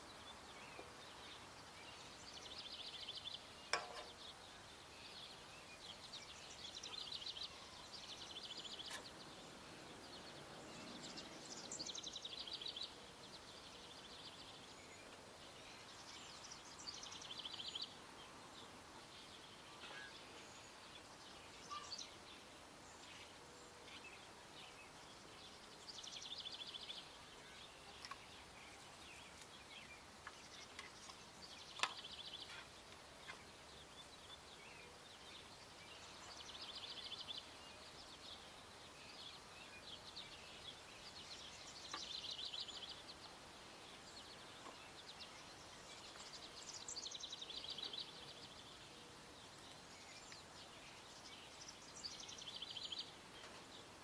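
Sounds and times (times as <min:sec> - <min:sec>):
bird chirps: 0:19.0 - 0:22.2.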